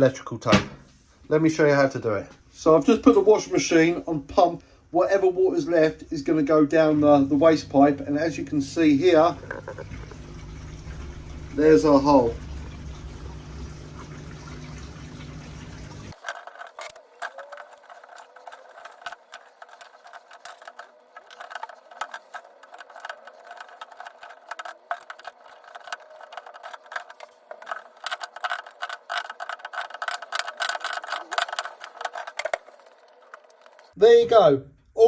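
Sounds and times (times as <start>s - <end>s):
drain pump humming: 6.9s - 16.2s, 17.8s - 34.0s
tape crackling while unwound: 16.1s - 34.0s.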